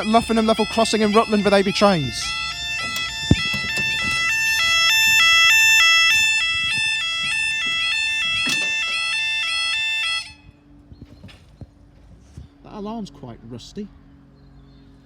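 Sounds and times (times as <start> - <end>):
level crossing two-tone alarm: 0.0 - 10.4.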